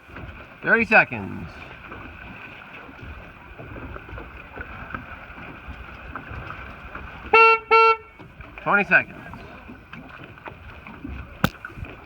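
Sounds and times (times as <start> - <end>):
water noise: 0.0 - 12.0
wind: 0.0 - 12.0
horn blast: 7.4 - 8.1.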